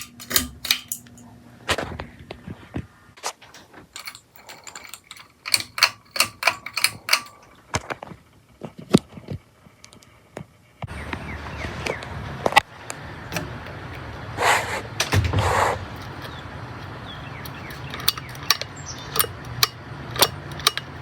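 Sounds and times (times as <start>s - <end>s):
ceiling fan clicking: 0.0s - 1.3s, 3.5s - 7.8s, 12.8s - 14.3s, 15.9s - 21.0s.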